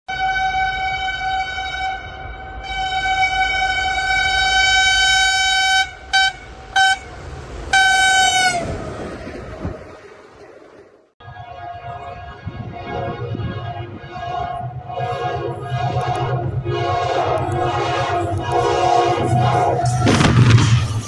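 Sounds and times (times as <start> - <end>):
diesel locomotive horn blasts: 0.1 - 8.9, 11.2 - 20.4
low rumble: 5.9 - 21.0.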